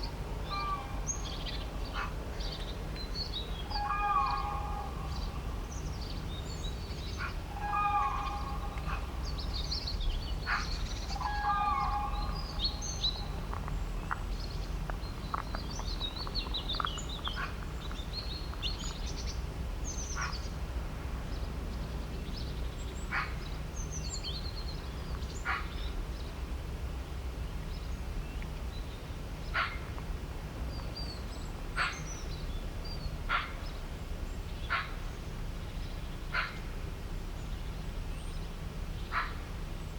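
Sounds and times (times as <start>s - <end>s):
birds chirping and calling: 0.0s - 20.5s
steady low rumble: 0.0s - 39.9s.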